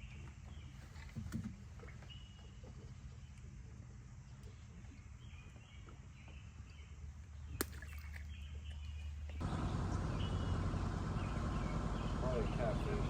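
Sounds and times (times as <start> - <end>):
birds chirping: 4.2 - 13.0
low rumble: 9.4 - 13.0.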